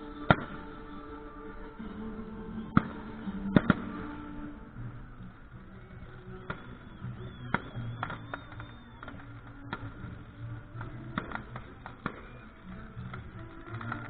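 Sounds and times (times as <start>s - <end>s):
fireworks crackling: 0.0s - 14.0s
high whistle: 0.0s - 14.0s
music: 0.0s - 14.0s
fireworks bangs: 2.5s - 14.0s.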